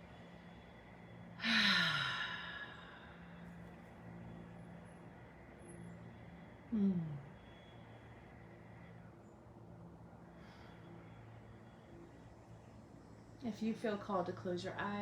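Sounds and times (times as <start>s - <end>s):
woman sighing: 1.4s - 3.0s, 6.8s - 7.2s.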